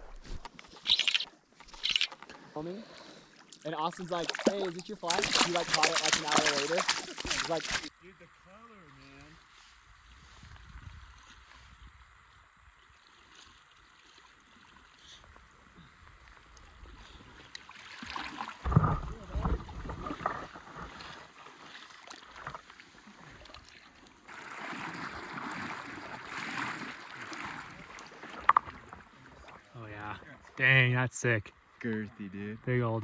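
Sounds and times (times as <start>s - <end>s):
water sloshing around boat: 1.6s - 7.9s, 12.4s - 30.6s
splashes and knocks: 3.9s - 7.9s, 17.1s - 29.6s.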